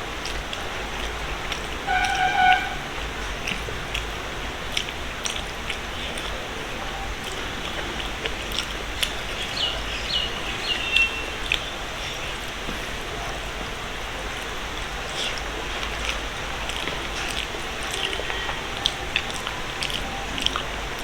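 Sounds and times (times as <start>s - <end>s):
background hiss: 0.0s - 21.0s
person chewing food: 3.2s - 6.6s, 7.2s - 12.9s, 14.3s - 21.0s.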